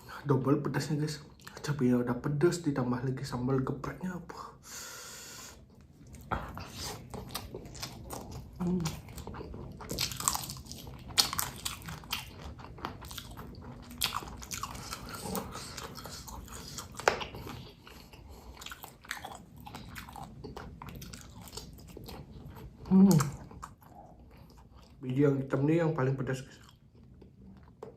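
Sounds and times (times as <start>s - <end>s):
crunchy chewing of chilies: 5.6s - 25.4s, 26.2s - 27.9s.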